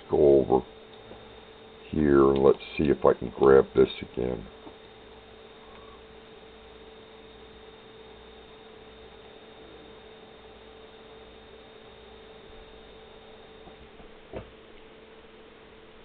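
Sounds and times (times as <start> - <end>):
pulse motor humming: 0.0 - 16.0.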